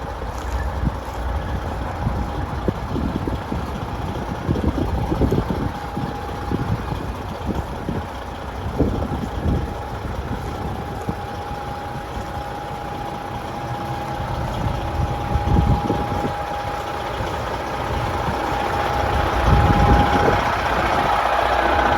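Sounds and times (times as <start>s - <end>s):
diesel truck engine idling: 0.0s - 21.9s
thin steady whine: 0.0s - 21.9s.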